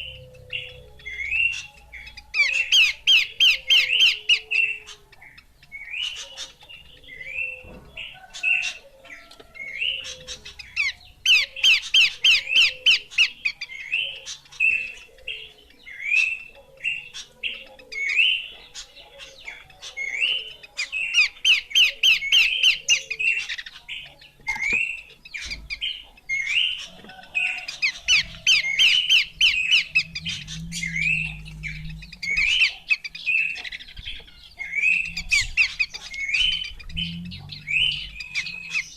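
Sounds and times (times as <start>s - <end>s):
fainter lower bird notes: 28.0s - 38.9s.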